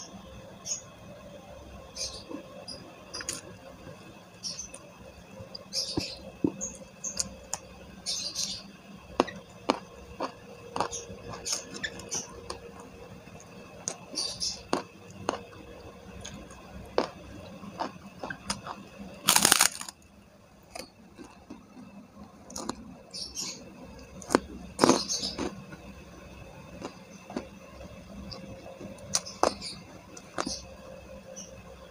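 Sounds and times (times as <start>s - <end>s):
crunchy bites: 8.4s - 20.0s, 20.6s - 23.4s, 24.0s - 25.9s, 28.2s - 30.7s
person chewing with mouth clicks: 16.2s - 19.9s, 24.2s - 25.6s.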